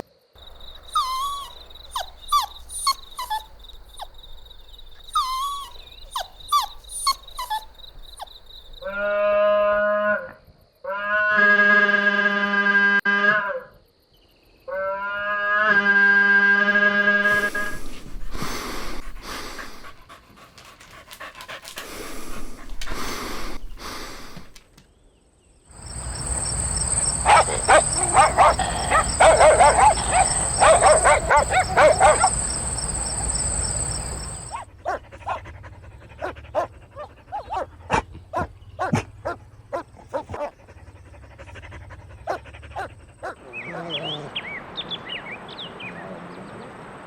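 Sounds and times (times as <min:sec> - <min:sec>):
puppies panting: 0:00.4 - 0:08.9, 0:17.3 - 0:24.6, 0:25.7 - 0:39.1, 0:39.8 - 0:43.4
puppies yapping and yelping: 0:00.5 - 0:08.3, 0:25.8 - 0:35.5
puppies yipping: 0:00.5 - 0:08.3, 0:17.3 - 0:20.0, 0:25.8 - 0:35.4.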